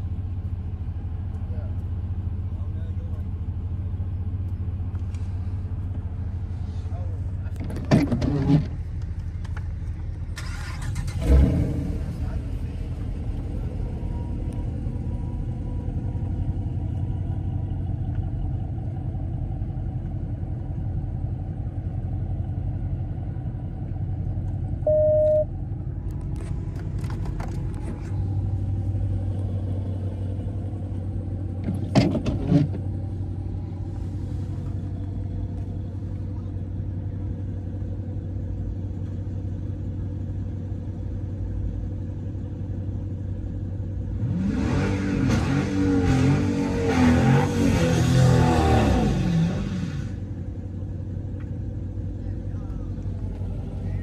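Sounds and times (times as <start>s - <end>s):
car engine droning: 0.0s - 54.0s
short electronic beep: 24.8s - 25.5s.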